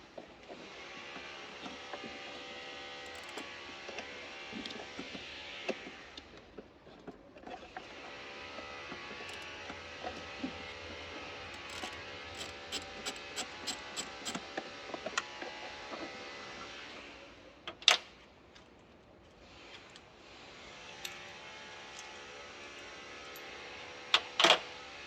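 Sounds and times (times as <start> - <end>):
sharp mechanical clicks: 11.6 - 14.4.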